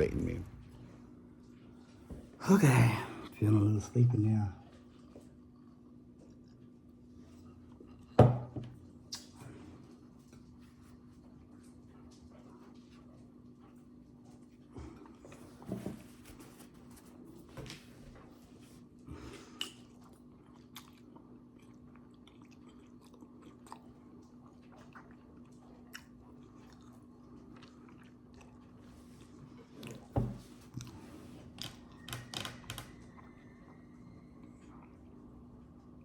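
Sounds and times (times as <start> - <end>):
person chewing and biting food: 19.5 - 30.1.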